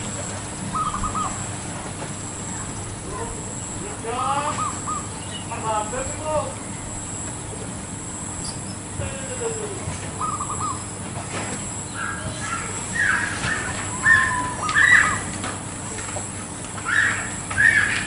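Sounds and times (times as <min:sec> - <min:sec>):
dove cooing in trills: 0:00.0 - 0:01.6, 0:04.4 - 0:05.5, 0:08.9 - 0:11.1, 0:11.8 - 0:15.3, 0:16.8 - 0:18.0.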